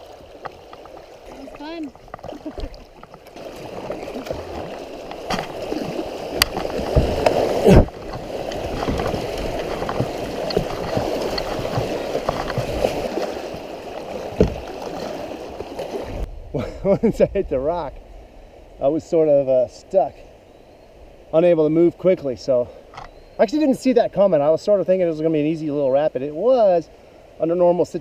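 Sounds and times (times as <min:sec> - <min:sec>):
river rapid rushing water: 0:00.0 - 0:16.3.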